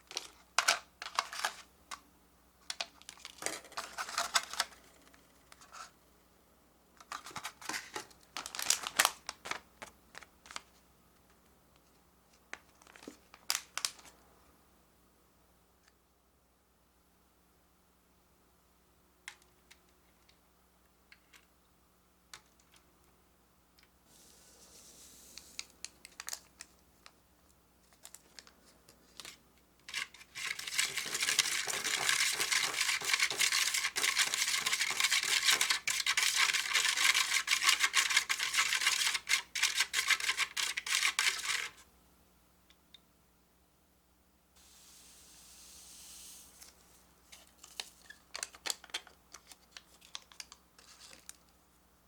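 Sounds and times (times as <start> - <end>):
spoon scraping plastic tray: 29.9 - 41.8
plastic pieces clicking and tapping: 48.3 - 51.4.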